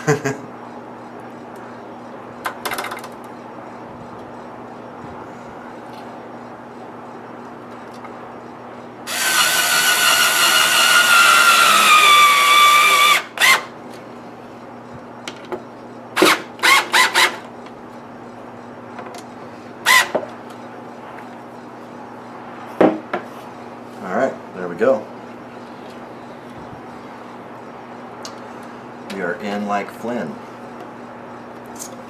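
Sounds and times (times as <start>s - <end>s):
power drill driving screws: 9.1s - 13.7s, 16.2s - 17.3s.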